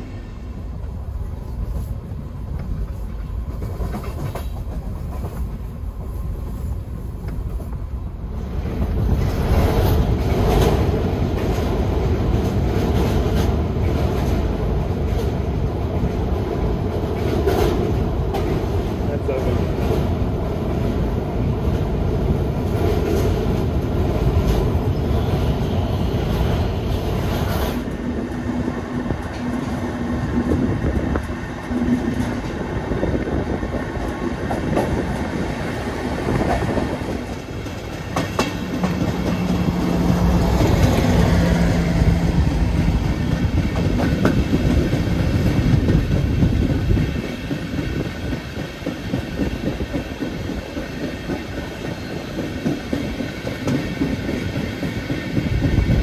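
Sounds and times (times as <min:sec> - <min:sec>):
train wheels rumbling on rails: 0:00.0 - 0:56.0
sharp track clicks: 0:36.3 - 0:56.0.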